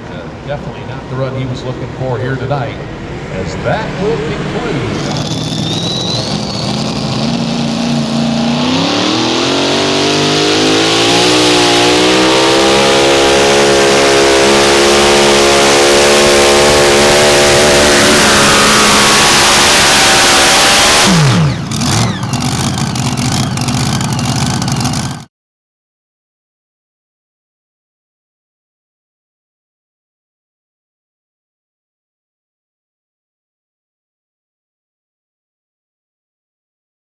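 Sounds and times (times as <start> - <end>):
tractor engine revving: 1.6 - 25.3.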